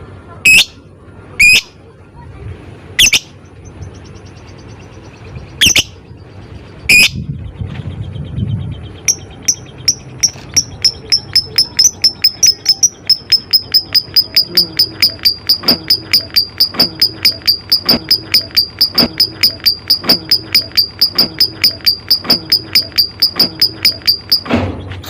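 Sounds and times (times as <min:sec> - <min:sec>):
lovebird clicking ticks: 0:09.1 - 0:24.4.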